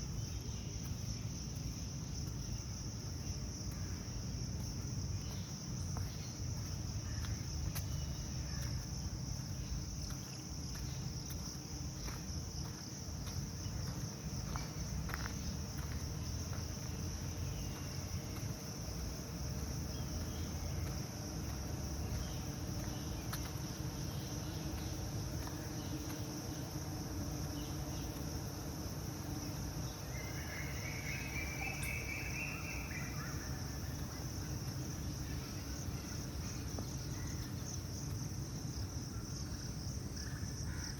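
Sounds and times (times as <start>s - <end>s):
insects chorus: 0.0s - 40.9s
bird chirping: 29.9s - 34.0s.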